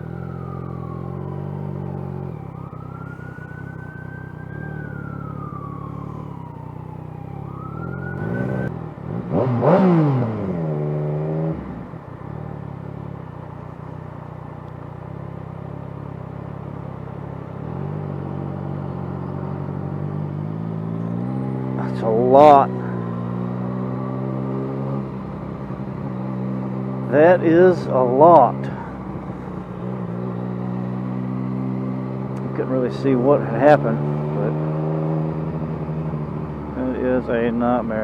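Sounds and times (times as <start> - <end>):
emergency siren wailing: 0.0 - 8.7, 18.0 - 36.5
engine sweeping in pitch: 0.0 - 11.9, 17.6 - 37.3
motorcycle engine running low: 0.0 - 38.0.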